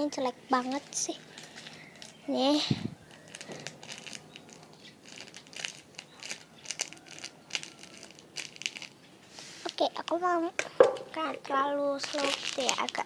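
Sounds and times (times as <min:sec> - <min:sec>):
squishy toy crinkling: 0:00.7 - 0:09.0, 0:11.9 - 0:13.0.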